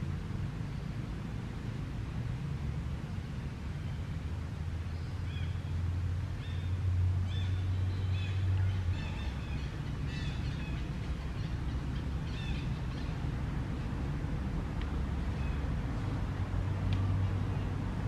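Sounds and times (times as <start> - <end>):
steady low hum: 0.0 - 18.0
small birds chirping: 4.8 - 13.8.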